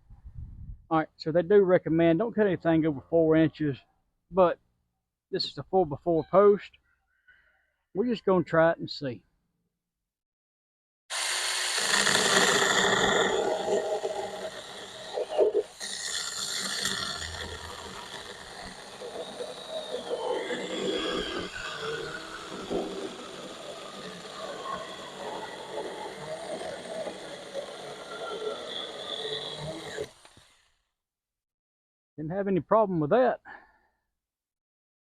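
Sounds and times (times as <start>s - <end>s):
electric chainsaw cutting wood: 11.1s - 30.8s.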